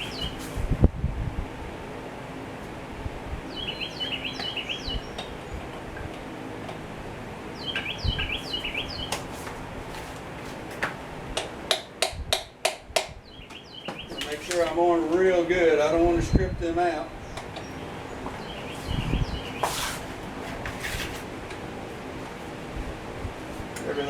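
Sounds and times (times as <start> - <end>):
steady low hum: 0.0 - 24.0
songbird chirping: 3.5 - 5.6, 7.6 - 9.2, 13.2 - 15.2, 17.2 - 19.7.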